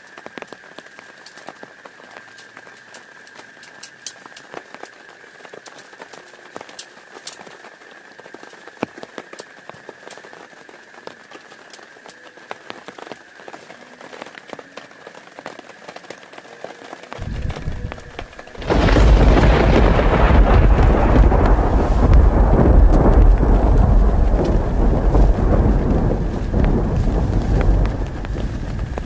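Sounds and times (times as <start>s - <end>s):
raindrops ticking: 0.0s - 29.0s
thunder rumbling: 17.2s - 29.0s.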